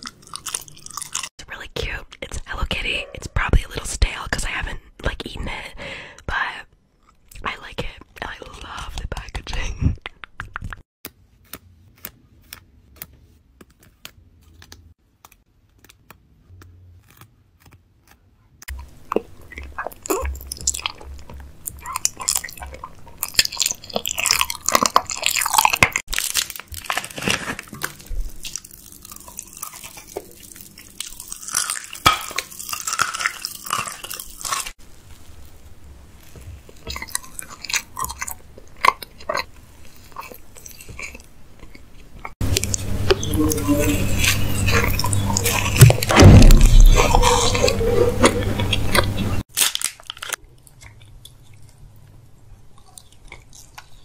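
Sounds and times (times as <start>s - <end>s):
crisp crunching and chewing: 0.0s - 1.3s, 13.8s - 43.2s, 43.8s - 54.0s.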